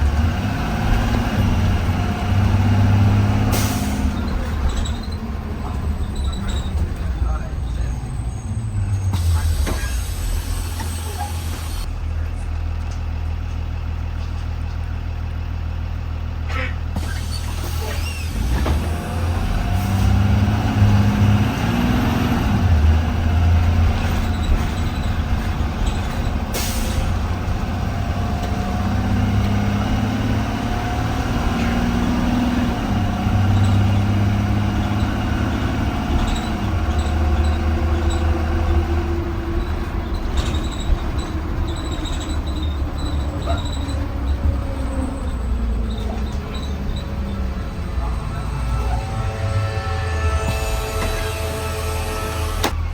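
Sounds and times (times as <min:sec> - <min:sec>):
bus engine: 0:00.0 - 0:52.9
air hiss: 0:09.2 - 0:11.9.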